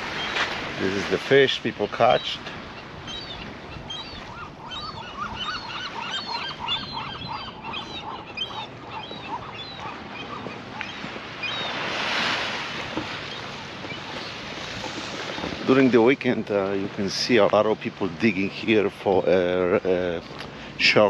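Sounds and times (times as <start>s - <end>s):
birds honking: 2.0s - 15.6s.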